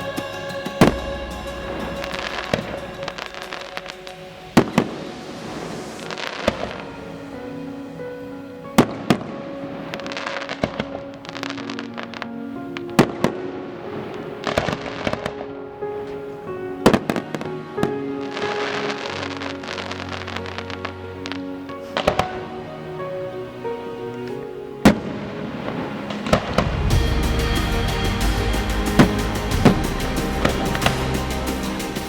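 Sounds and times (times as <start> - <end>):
firework bangs: 0.0 - 7.2
fireworks crackling: 0.0 - 7.9, 8.8 - 22.3, 24.9 - 32.0
music: 0.0 - 32.0.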